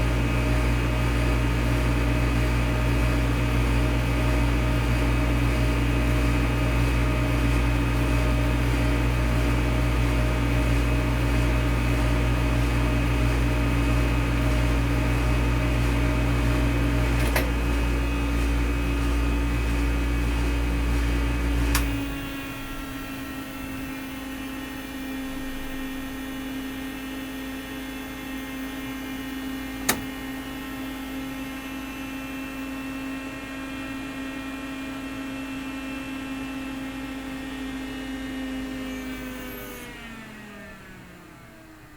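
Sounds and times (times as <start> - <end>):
sharp click: 29.8 - 30.2.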